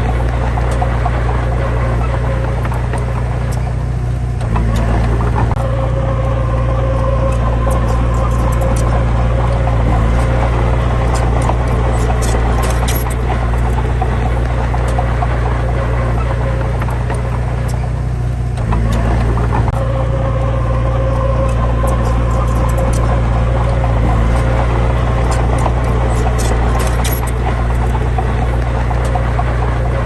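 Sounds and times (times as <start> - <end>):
heavy diesel engine running: 0.0 - 30.0
thin whine: 0.0 - 30.0.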